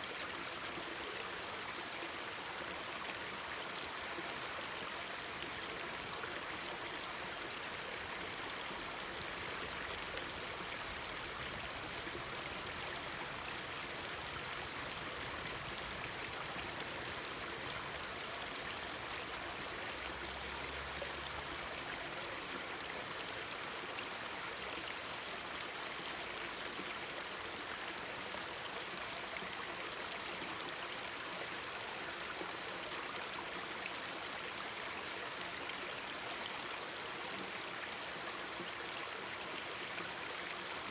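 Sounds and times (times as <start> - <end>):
stream rushing over rocks: 0.0 - 26.2.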